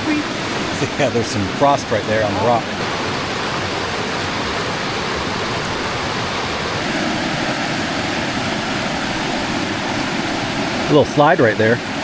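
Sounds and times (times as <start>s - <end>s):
creek rushing over rocks: 0.0s - 12.0s.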